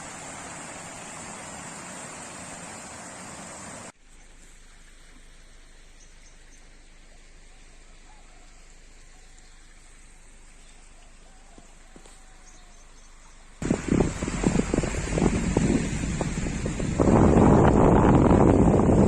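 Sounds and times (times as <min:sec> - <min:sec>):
soft steady rain: 0:00.0 - 0:19.0
wind buffeting microphone: 0:13.6 - 0:19.0.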